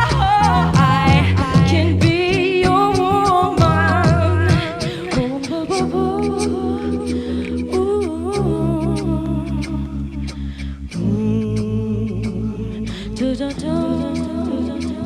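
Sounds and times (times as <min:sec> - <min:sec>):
sustained low chords: 0:05.8 - 0:15.0.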